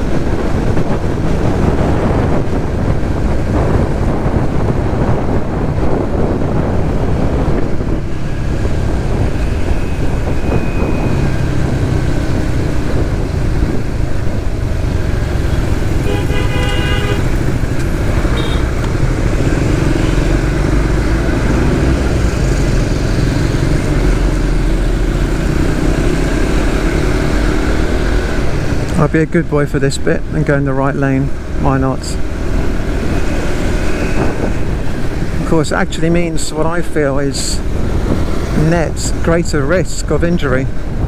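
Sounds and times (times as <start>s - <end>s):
motorcycle engine running: 0.0s - 28.9s
traffic noise: 0.0s - 41.0s
vehicle horn: 15.8s - 20.6s.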